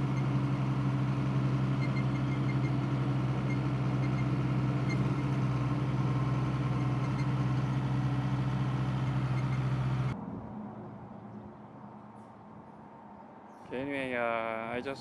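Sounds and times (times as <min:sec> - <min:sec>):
vehicle engine idling: 0:00.0 - 0:10.2.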